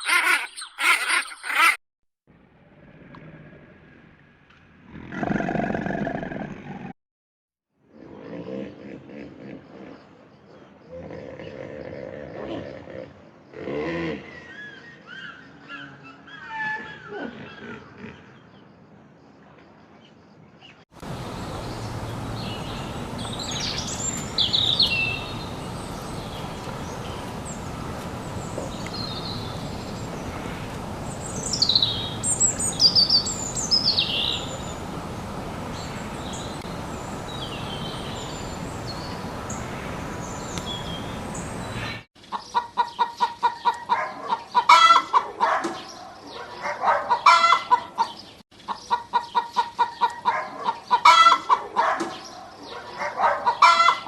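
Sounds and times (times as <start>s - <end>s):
bird chirps: 21.4s - 27.7s.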